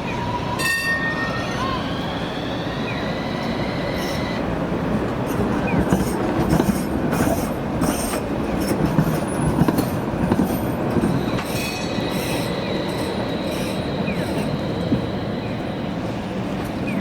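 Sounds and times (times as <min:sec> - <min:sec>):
thin wheel squeal: 0:00.0 - 0:04.5, 0:11.2 - 0:17.0
tram rumbling on track: 0:00.0 - 0:17.0
wheels clacking over rail joints: 0:00.0 - 0:17.0.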